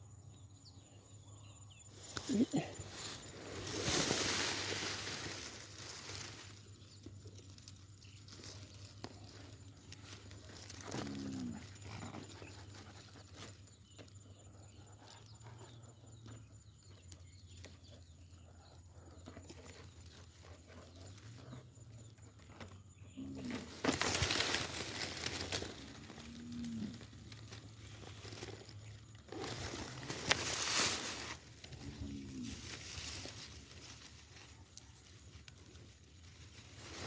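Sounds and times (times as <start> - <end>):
loud rustling noise: 2.0 - 6.8, 23.5 - 37.0.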